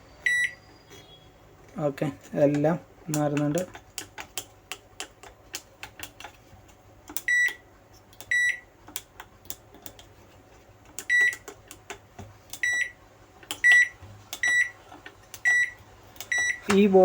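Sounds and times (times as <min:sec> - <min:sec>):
microwave buzzer short high beeps: 0:00.2 - 0:01.3, 0:07.2 - 0:07.6, 0:08.3 - 0:08.6, 0:11.1 - 0:11.4, 0:12.6 - 0:13.0, 0:13.6 - 0:14.8, 0:15.4 - 0:16.7.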